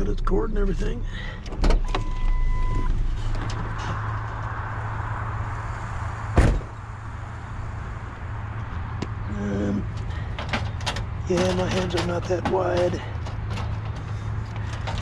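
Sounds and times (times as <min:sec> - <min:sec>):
vehicle engine idling: 0:00.0 - 0:15.0
short beep: 0:01.8 - 0:02.9
loud thump: 0:06.3 - 0:06.8.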